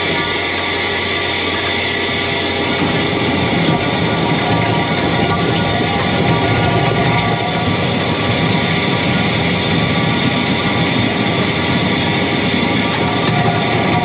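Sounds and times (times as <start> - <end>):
diesel engine running: 0.0 - 14.0
steady whining tones: 0.0 - 14.0.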